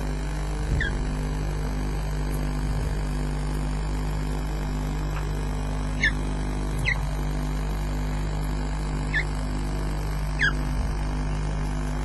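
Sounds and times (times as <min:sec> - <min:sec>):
electrical hum: 0:00.0 - 0:12.0
bird chirps: 0:00.8 - 0:01.0, 0:06.0 - 0:06.2, 0:06.8 - 0:07.1, 0:09.1 - 0:09.3, 0:10.4 - 0:10.6.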